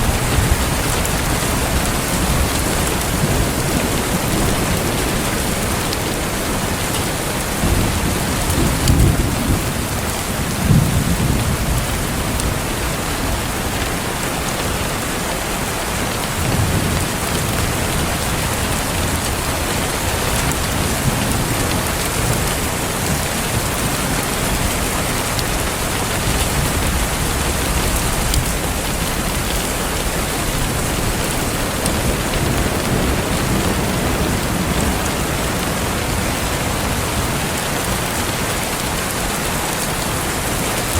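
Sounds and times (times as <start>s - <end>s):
steady rain: 0.0s - 40.9s
thunder rumbles: 0.0s - 40.9s.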